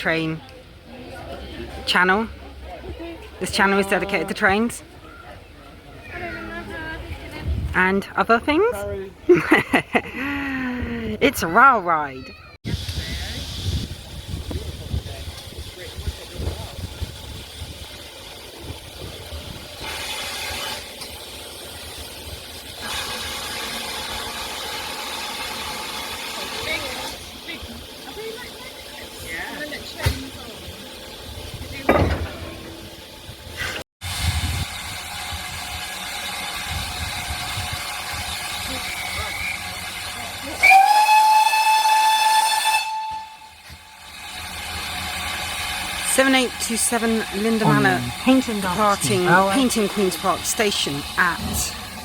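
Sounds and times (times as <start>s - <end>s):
steam hiss: 12.7s - 27.3s
steam locomotive hissing steam: 12.7s - 52.0s
steam whistle blast: 40.4s - 45.4s.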